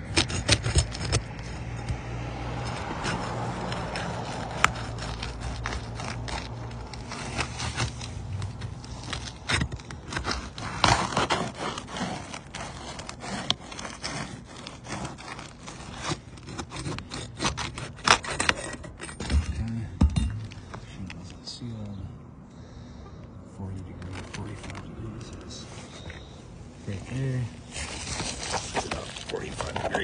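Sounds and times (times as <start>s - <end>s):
vehicle low hum: 0.0s - 10.9s, 18.7s - 30.0s
hands and shoes scraping shingles: 0.0s - 21.3s, 23.7s - 30.0s.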